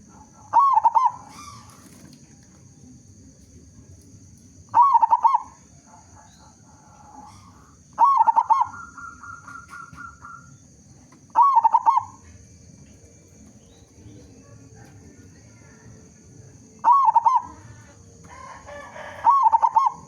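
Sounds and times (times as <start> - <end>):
dove cooing calls: 0.0 - 2.1, 4.7 - 10.7, 11.3 - 12.3, 16.5 - 20.0.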